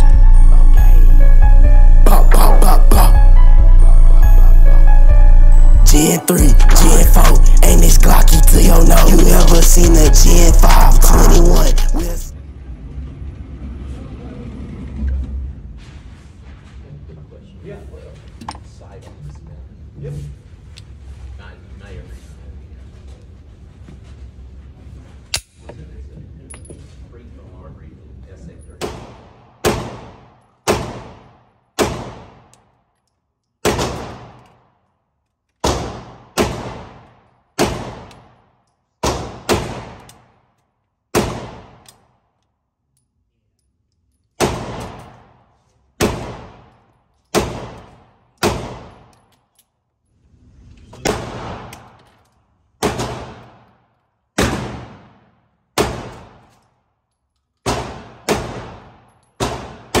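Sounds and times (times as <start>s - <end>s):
gunshots: 35.6s - 37.0s, 39.0s - 40.1s, 41.2s - 41.8s.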